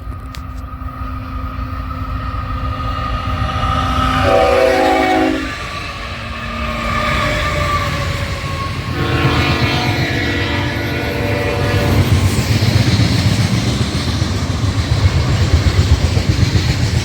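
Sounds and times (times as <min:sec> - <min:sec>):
multi-tone air horn: 0:04.2 - 0:05.6, 0:08.9 - 0:12.2.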